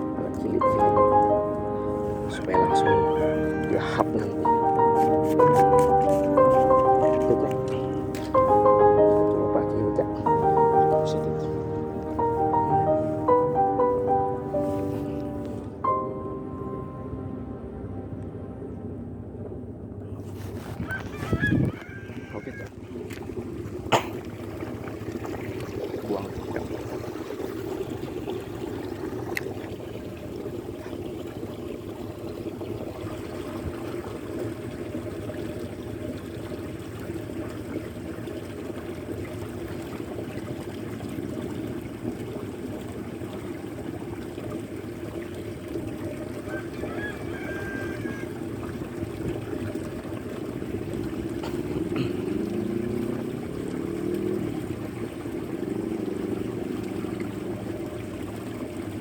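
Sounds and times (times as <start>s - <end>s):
motor pitch sliding: 0.0s - 20.9s
choppy water: 0.0s - 59.0s.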